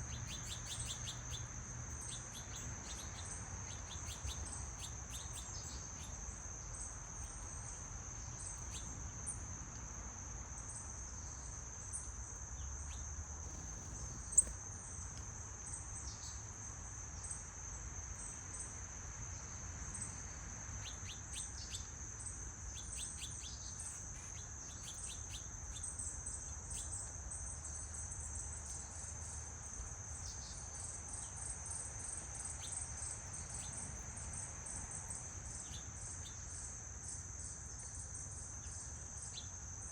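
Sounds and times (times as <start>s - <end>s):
bird chirps: 0.0s - 1.4s, 2.0s - 6.1s, 20.8s - 21.9s, 22.7s - 26.0s
insects trilling: 0.0s - 39.9s.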